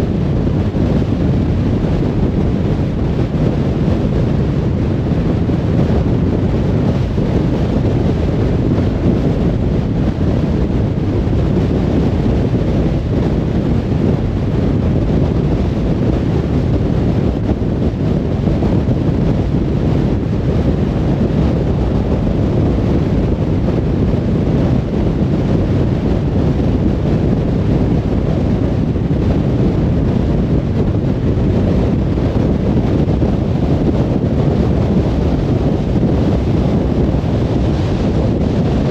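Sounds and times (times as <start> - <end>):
car road and wind noise: 0.0 - 38.9.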